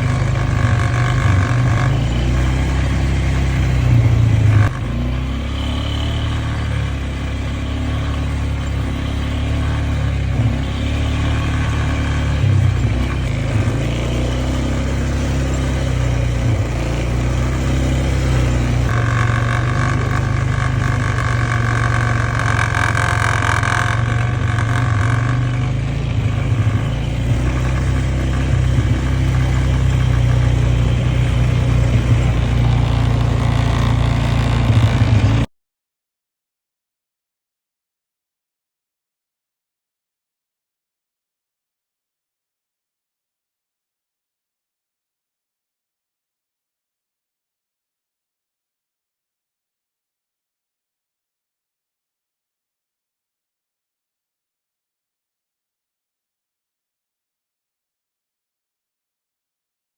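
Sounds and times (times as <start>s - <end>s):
engine running: 0.0s - 35.5s.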